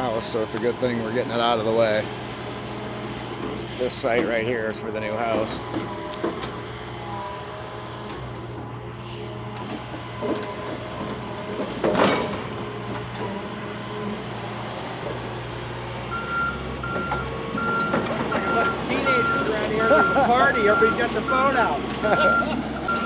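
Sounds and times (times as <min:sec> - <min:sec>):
diesel excavator running: 0:00.0 - 0:23.0
travel alarm beeping: 0:16.1 - 0:21.6, 0:22.2 - 0:23.0.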